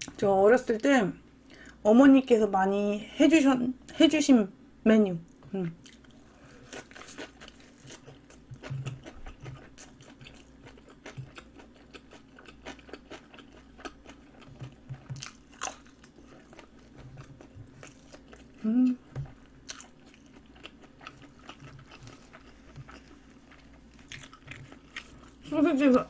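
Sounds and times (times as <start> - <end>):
chewing with wet crunches: 5.8 - 26.0.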